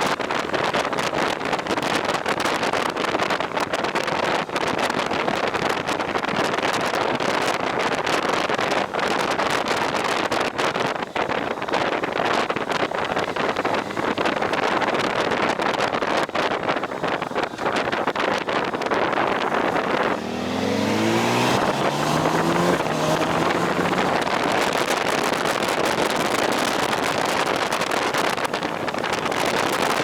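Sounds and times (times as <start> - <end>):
road and engine noise: 0.0 - 30.0
wind buffeting microphone: 0.0 - 30.0.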